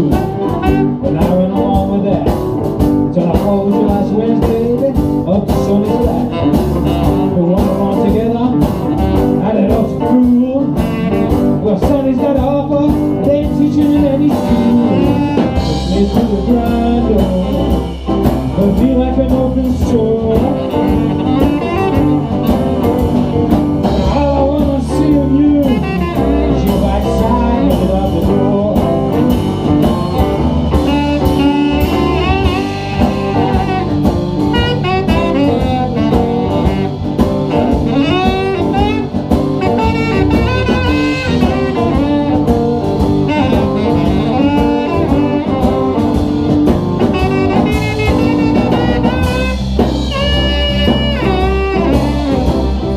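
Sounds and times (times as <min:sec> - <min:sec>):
lead instrument solo: 0:00.0 - 0:02.8, 0:14.2 - 0:52.9
bass: 0:00.0 - 0:52.9
drums: 0:00.0 - 0:52.9.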